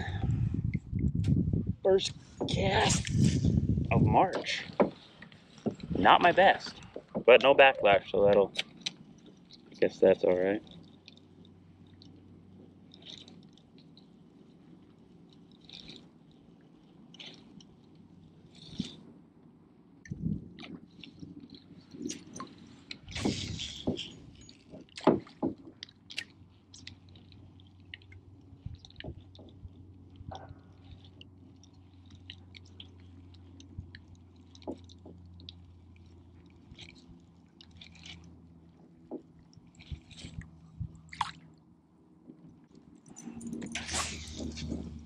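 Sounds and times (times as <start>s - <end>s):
faint low hum: 0.0s - 45.0s
fishing gear clicks and knocks: 42.2s - 45.0s.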